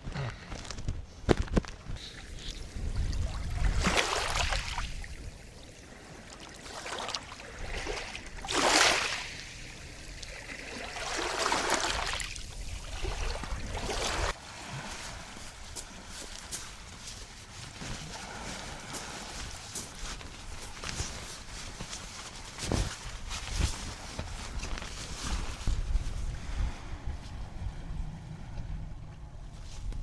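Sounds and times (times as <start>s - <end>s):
small waves washing up shore: 2.0s - 21.4s.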